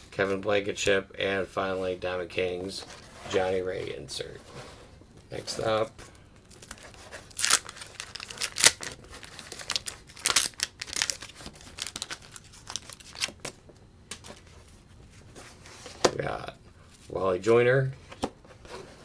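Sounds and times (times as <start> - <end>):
sharp paper crackles: 6.5 - 13.5
wax paper wrapper tearing: 6.5 - 13.5.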